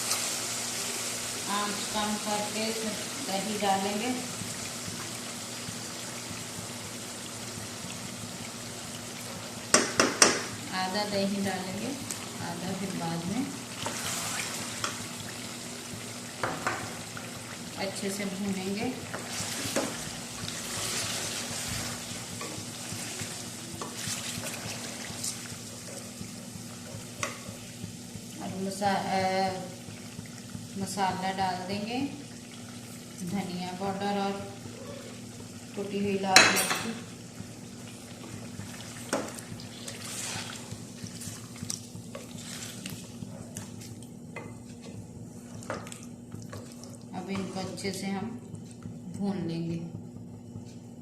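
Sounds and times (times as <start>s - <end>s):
chicken sizzling in a pan: 0.0s - 44.0s
utensil scraping a pan: 20.6s - 23.2s, 39.7s - 41.5s.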